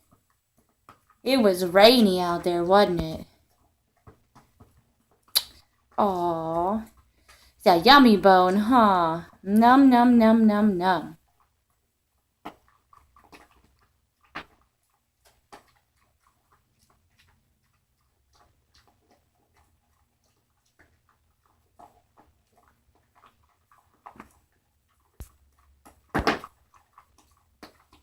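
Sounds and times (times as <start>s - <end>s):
dog chewing bone: 0.0s - 1.3s, 2.4s - 7.6s, 11.2s - 28.0s.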